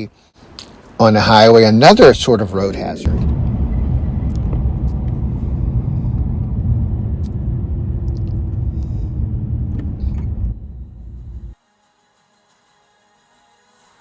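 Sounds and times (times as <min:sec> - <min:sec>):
truck road and engine rumble: 0:01.4 - 0:11.6.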